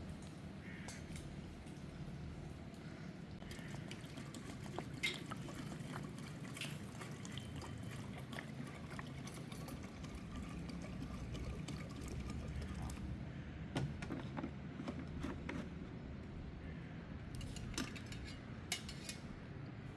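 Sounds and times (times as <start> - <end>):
liquid pouring and trickling: 3.4 - 13.2.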